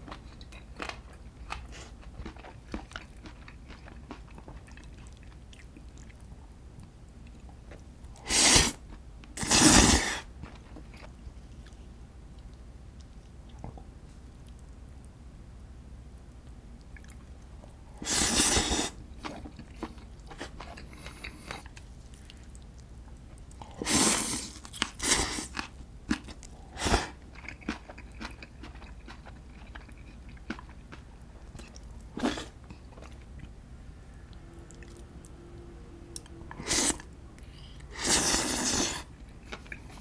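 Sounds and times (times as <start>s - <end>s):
person chewing and biting: 0.1s - 6.1s, 24.3s - 33.5s
short loud eating bursts: 8.3s - 8.8s, 9.4s - 10.3s, 18.0s - 19.0s, 36.6s - 37.1s, 37.9s - 39.1s.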